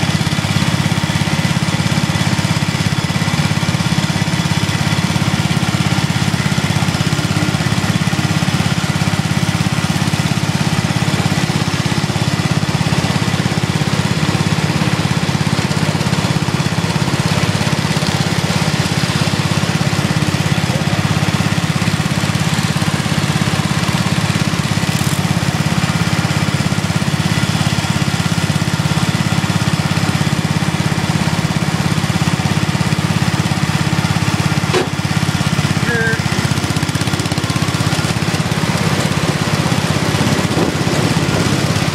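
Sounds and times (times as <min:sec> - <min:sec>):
small tractor engines droning: 0:00.0 - 0:41.9.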